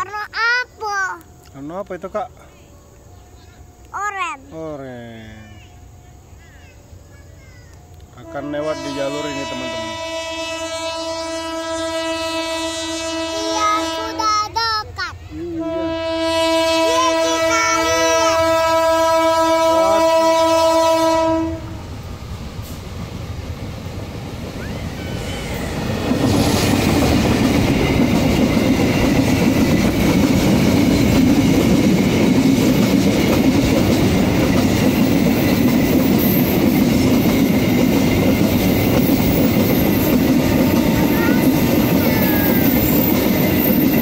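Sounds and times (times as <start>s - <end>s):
train wheels rumbling on rail: 7.8s - 44.0s
locomotive horn blast: 8.2s - 14.2s, 15.5s - 21.8s.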